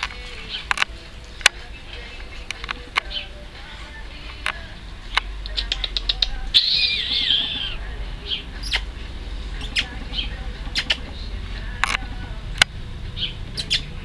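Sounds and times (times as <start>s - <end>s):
sharp clicks: 0.0s - 3.3s, 4.2s - 7.8s, 9.6s - 12.8s
puppy squealing: 5.6s - 9.0s.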